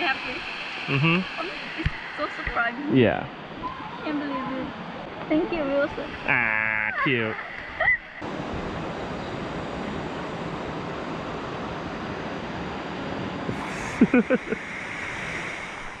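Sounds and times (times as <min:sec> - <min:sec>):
rush of falling water: 0:00.0 - 0:04.9, 0:13.5 - 0:16.0.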